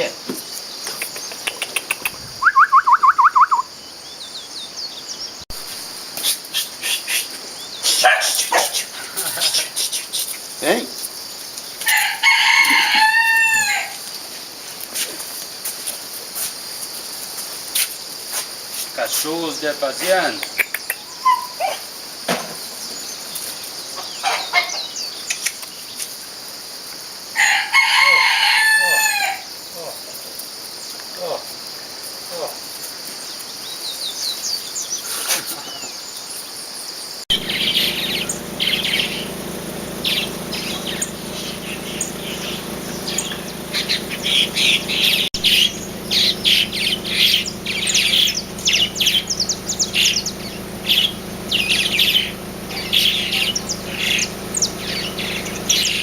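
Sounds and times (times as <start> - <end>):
crickets chirping: 0.0 - 56.0
bird call of sharp rising notes: 2.2 - 3.8, 37.3 - 56.0
high insect buzz: 5.5 - 21.0, 37.0 - 56.0
rooster crowing: 11.8 - 14.1, 27.4 - 29.5.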